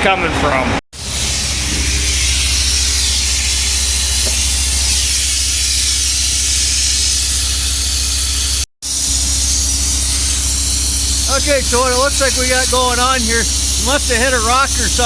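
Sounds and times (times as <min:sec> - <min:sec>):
compressed air hissing: 0:01.0 - 0:15.0.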